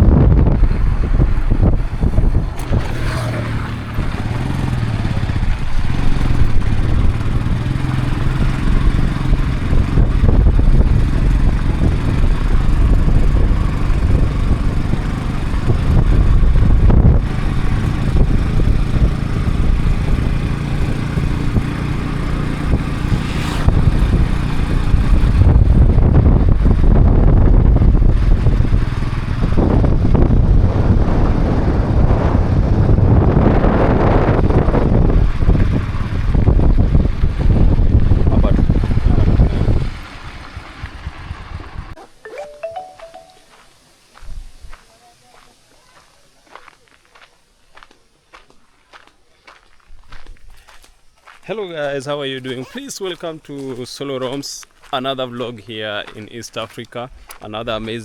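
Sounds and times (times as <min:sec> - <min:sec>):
vehicle engine running: 0:00.0 - 0:42.0
wind buffeting microphone: 0:00.0 - 0:42.0.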